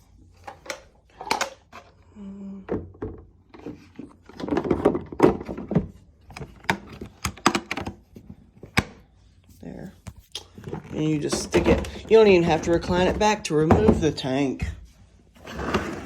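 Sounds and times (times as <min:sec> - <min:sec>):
plastic parts knocking and clicking: 0:00.4 - 0:01.9, 0:02.7 - 0:09.0.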